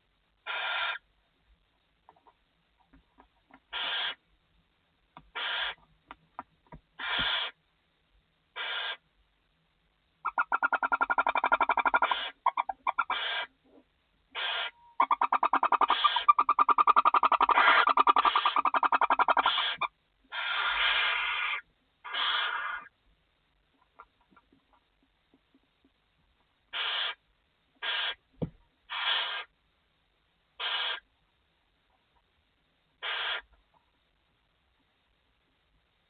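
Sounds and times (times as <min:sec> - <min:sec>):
owls hissing: 0:00.4 - 0:01.0, 0:03.7 - 0:04.2, 0:05.3 - 0:05.8, 0:07.0 - 0:07.6, 0:08.6 - 0:09.0, 0:10.2 - 0:13.5, 0:14.3 - 0:22.9, 0:26.7 - 0:27.2, 0:27.8 - 0:28.2, 0:28.9 - 0:29.6, 0:30.6 - 0:31.1, 0:33.0 - 0:33.5
owls chittering trills: 0:00.4 - 0:01.1, 0:03.7 - 0:04.2, 0:05.3 - 0:05.8, 0:07.0 - 0:07.6, 0:08.6 - 0:09.0, 0:10.2 - 0:22.9, 0:26.7 - 0:27.2, 0:27.8 - 0:28.2, 0:28.9 - 0:29.6, 0:30.6 - 0:31.1, 0:33.0 - 0:33.5.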